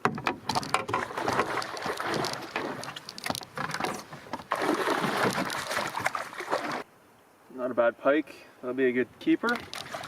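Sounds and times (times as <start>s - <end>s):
fish thrashing water splashes: 1.0s - 6.8s, 9.6s - 10.0s.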